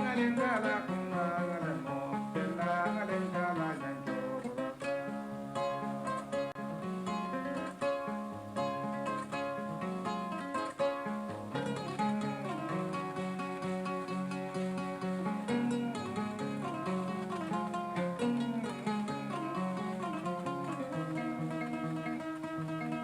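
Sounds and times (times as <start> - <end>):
harp-lute plucked solo: 0.0 - 23.0.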